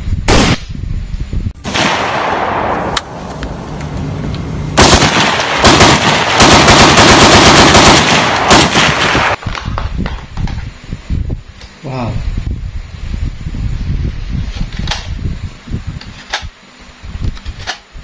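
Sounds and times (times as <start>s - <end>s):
single gunshot crack: 0.3s - 0.7s, 1.6s - 3.2s
automatic gunfire: 4.8s - 9.4s.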